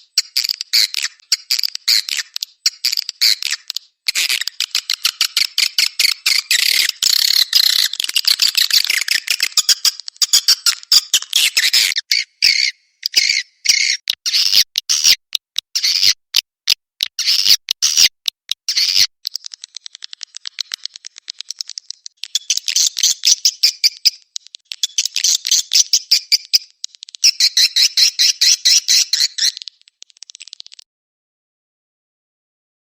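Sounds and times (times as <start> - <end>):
swiftlet clicking chirps: 0.0 - 30.8.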